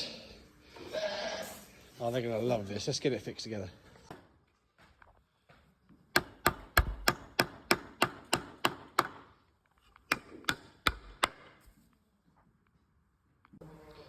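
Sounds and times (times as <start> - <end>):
hammer driving nails into wood: 6.1 - 9.3, 9.9 - 11.6.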